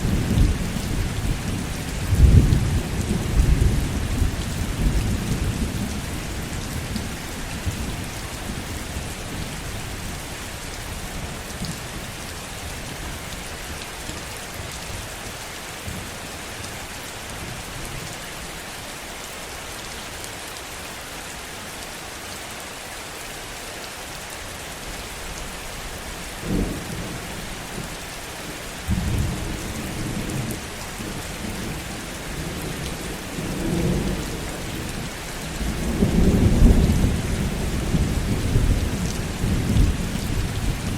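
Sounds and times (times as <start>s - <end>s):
thunder rumbling: 0.0s - 9.5s, 28.9s - 40.9s
heavy rain: 0.0s - 40.9s.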